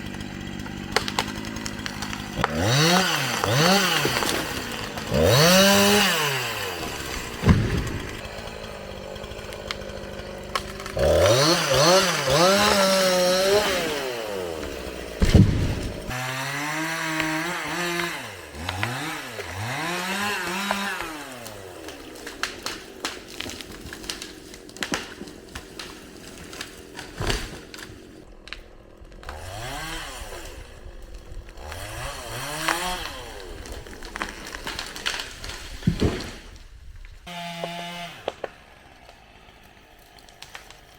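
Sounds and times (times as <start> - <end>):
chainsaw engine revving: 0.0 - 36.4, 37.2 - 40.8
sharp knocks: 7.3 - 8.2, 15.2 - 16.1.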